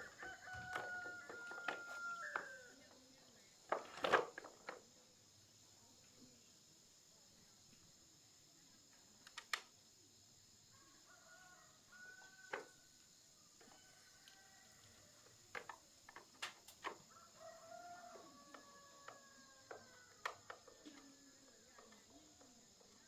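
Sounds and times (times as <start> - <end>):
rooster crowing faintly: 0.0 - 3.0, 10.7 - 15.8, 16.8 - 22.3.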